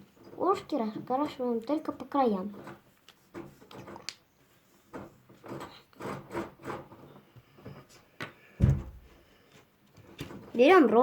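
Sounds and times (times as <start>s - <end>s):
colouring tool scratching on paper: 5.4s - 7.2s.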